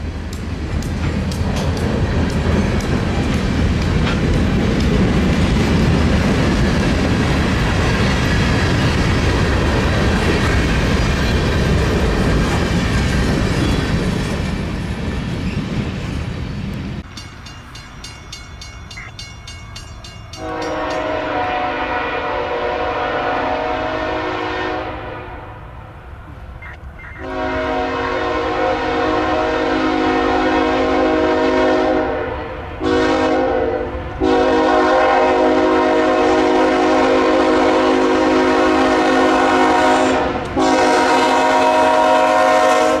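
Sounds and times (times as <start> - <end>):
freight train wheels on rails: 0.0 - 43.0
locomotive chime horn blasts: 18.9 - 25.6, 27.1 - 43.0.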